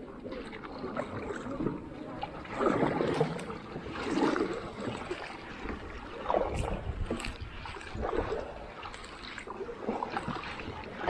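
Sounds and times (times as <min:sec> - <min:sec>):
paddle strokes in water: 0:00.0 - 0:11.0
wind on microphone: 0:04.0 - 0:08.9.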